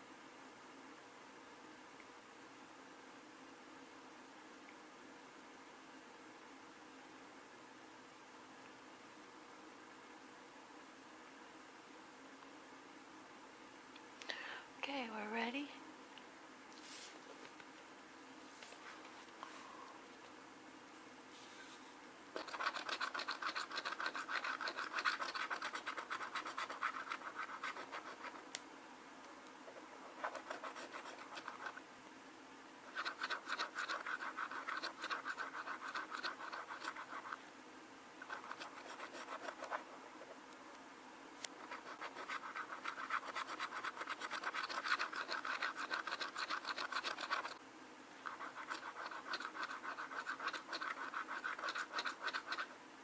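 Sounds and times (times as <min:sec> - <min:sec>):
coin scratching lottery ticket: 0:22.4 - 0:28.4, 0:30.2 - 0:31.8, 0:32.9 - 0:37.4, 0:38.3 - 0:39.8, 0:41.6 - 0:47.6, 0:48.3 - 0:52.7.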